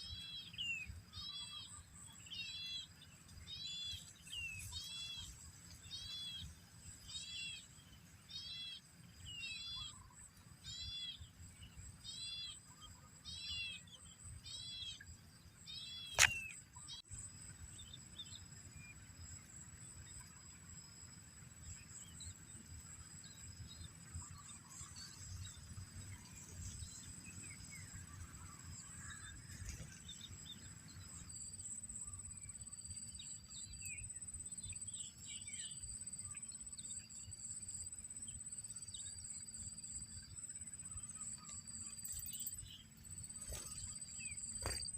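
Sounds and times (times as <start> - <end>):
high insect drone: 0.0 - 44.9
sharp click: 16.1 - 16.6
faint chirps: 21.6 - 44.9.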